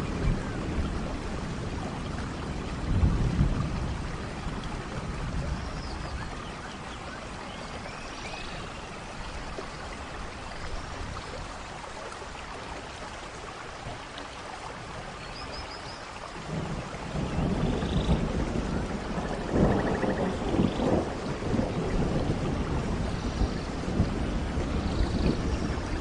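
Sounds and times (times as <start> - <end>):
thunder rumble: 0.0 - 6.4, 16.4 - 26.0
steady rain pouring: 0.0 - 26.0.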